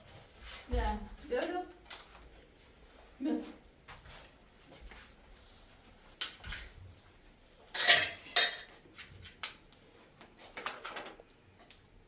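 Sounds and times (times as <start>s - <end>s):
cutlery and dishes clinking: 6.2s - 6.8s, 7.7s - 8.8s.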